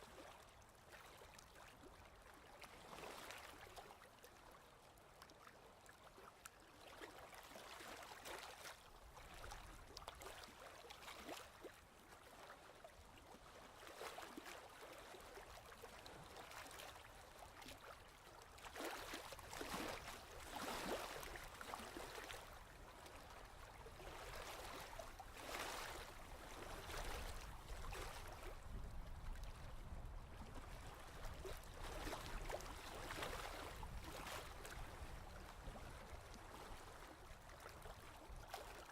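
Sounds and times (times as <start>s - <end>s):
faint ocean waves washing in: 15.4s - 38.7s.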